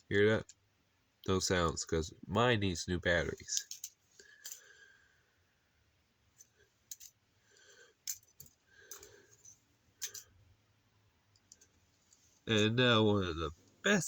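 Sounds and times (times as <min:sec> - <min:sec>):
plastic toy parts clicking: 0:03.4 - 0:04.6, 0:06.9 - 0:07.2, 0:08.0 - 0:09.2.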